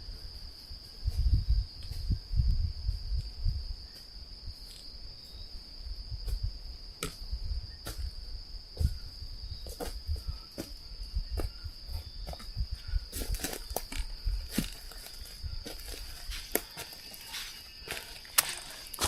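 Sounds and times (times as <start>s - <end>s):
insects chirring: 0.0s - 19.0s
footsteps snapping forest litter: 13.2s - 19.0s.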